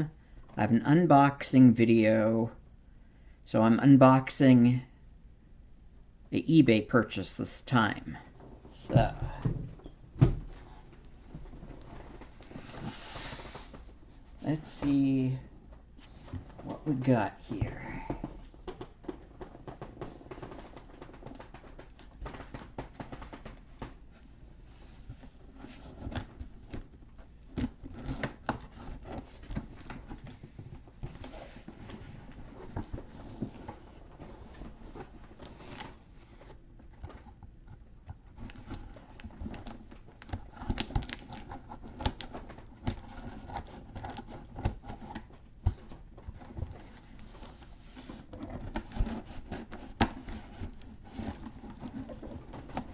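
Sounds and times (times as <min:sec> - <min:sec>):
package being opened by hand: 0:38.4 - 0:44.8.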